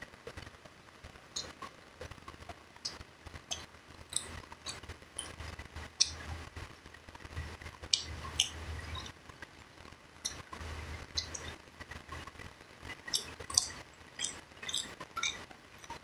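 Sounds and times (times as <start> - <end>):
person chewing food: 2.8 - 5.4, 7.3 - 9.2, 12.9 - 16.0
lip smacks: 13.0 - 16.0.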